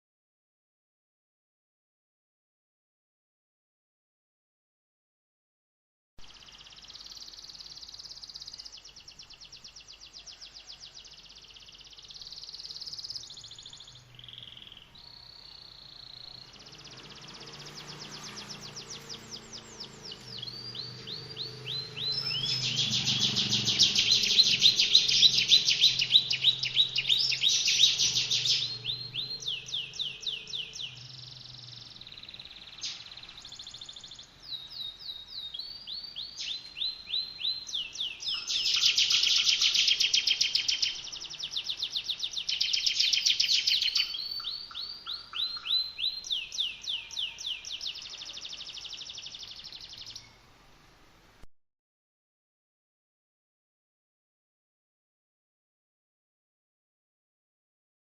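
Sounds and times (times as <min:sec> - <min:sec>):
songbird rattling trills: 0:16.0 - 0:34.2, 0:38.2 - 0:48.1.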